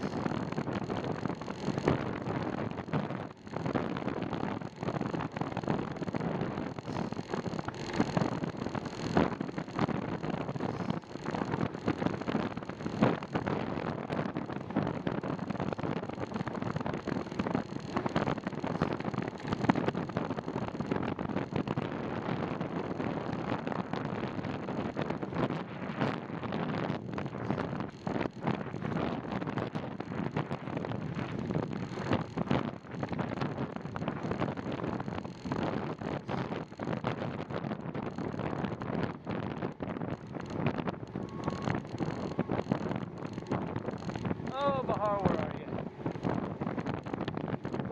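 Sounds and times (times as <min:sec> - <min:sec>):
wind on microphone: 0:00.0 - 0:47.9.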